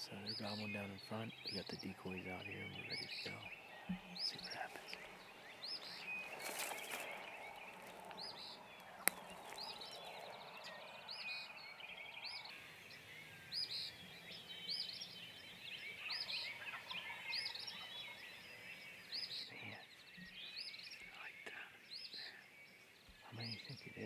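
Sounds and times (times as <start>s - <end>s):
distant turkeys gobbling: 0.0s - 19.2s
songbirds chirping: 0.0s - 24.0s.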